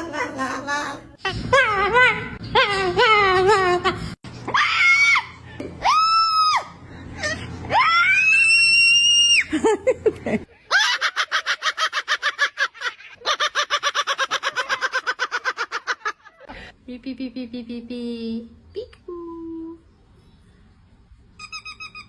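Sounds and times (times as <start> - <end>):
parrot calling: 21.4 - 22.0.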